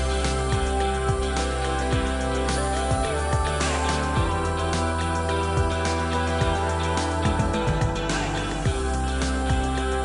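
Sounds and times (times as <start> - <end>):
background music with low beat: 0.0 - 10.0.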